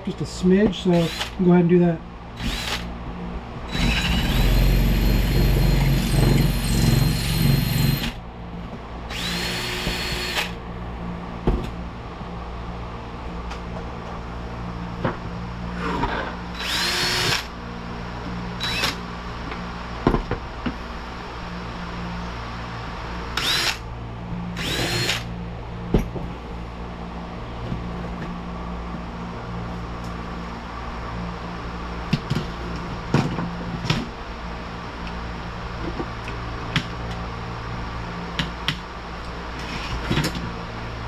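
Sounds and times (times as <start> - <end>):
steady low hum: 0.0 - 35.6
electric drill bursts: 0.9 - 1.4, 2.4 - 2.9, 3.7 - 8.2, 9.1 - 10.6, 16.6 - 17.5, 18.6 - 19.0, 23.4 - 23.8, 24.6 - 25.3.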